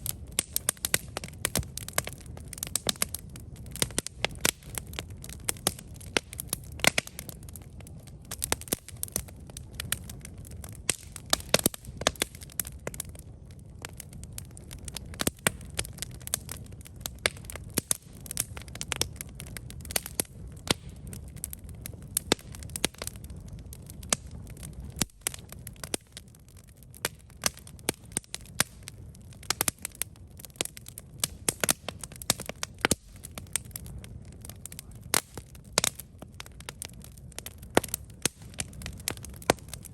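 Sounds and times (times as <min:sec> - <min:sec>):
campfire crackling and popping: 0:00.0 - 0:39.9
low rumble of flames: 0:00.0 - 0:39.9.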